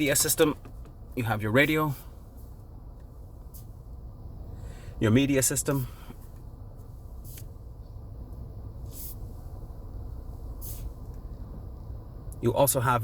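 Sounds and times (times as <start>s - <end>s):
low steady rumble: 0.0s - 13.0s
short faint hisses: 5.9s - 7.7s, 8.8s - 9.5s, 10.3s - 11.1s.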